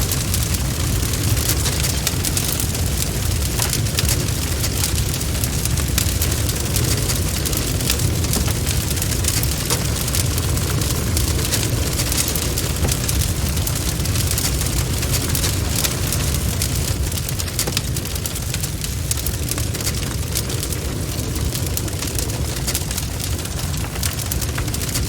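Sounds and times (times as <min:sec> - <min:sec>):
burning wood crackling and popping: 0:00.0 - 0:25.0
campfire flames rumbling: 0:00.0 - 0:25.0.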